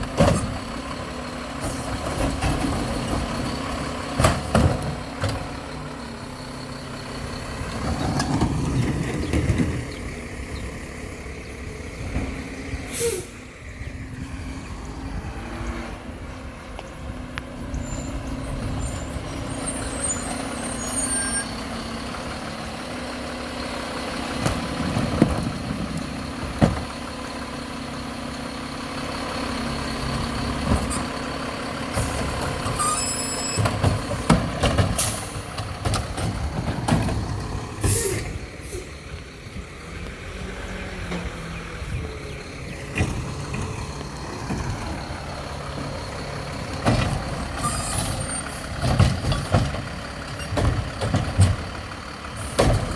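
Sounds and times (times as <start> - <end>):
diesel engine running: 0.0 - 52.9
air brake hiss: 12.9 - 13.5, 37.8 - 39.0.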